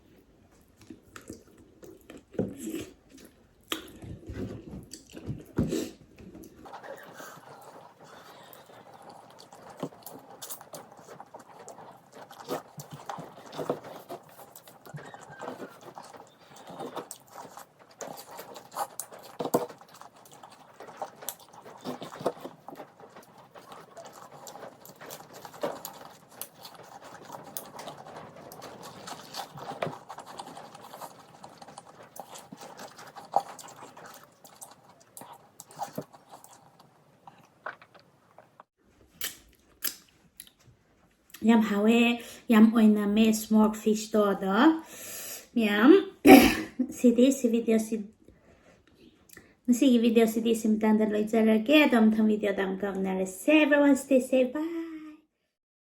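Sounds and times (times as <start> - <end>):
wet chewing and lip smacking: 0.5 - 40.7, 48.8 - 49.6
small mouth clicks: 39.2 - 40.6.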